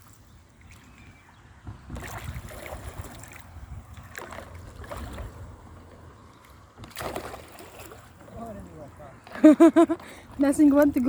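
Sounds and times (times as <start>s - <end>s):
paddle splashing water: 0.0s - 11.0s
wind buffeting microphone: 0.3s - 7.3s.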